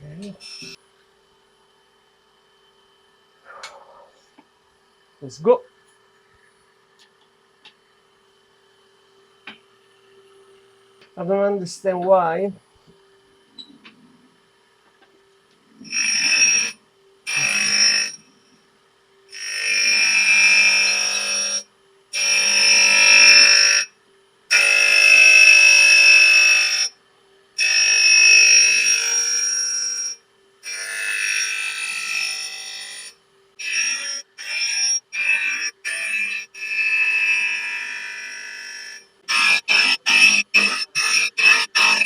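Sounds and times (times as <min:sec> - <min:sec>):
grinding wheel screeching on steel: 0:15.8 - 0:18.2.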